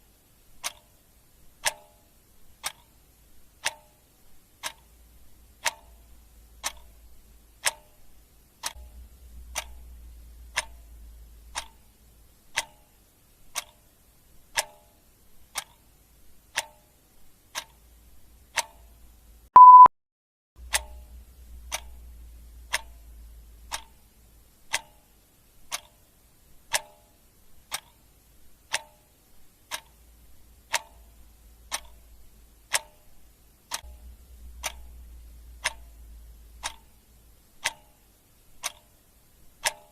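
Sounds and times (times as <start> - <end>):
clock ticking: 0.5 - 19.9, 20.6 - 39.9
short loud beep: 19.6 - 19.9.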